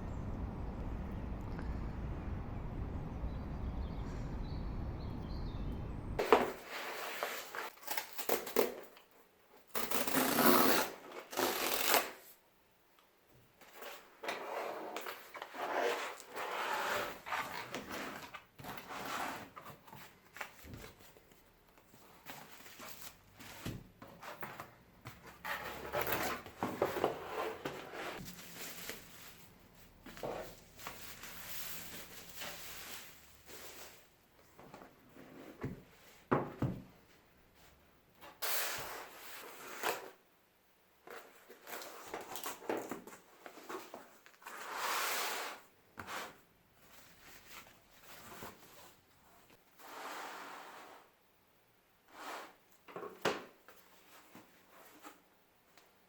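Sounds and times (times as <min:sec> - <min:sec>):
outdoor background noise: 0:00.0 - 0:56.0
cardboard packaging rustling and tearing: 0:25.5 - 0:34.1.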